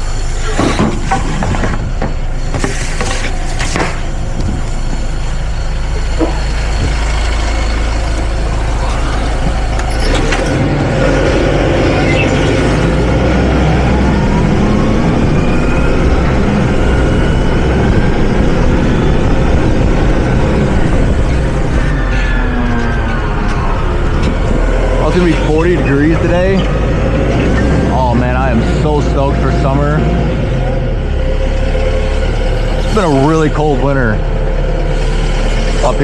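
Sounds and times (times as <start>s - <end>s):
forklift running: 0.0s - 36.0s
rising whine: 0.0s - 36.0s.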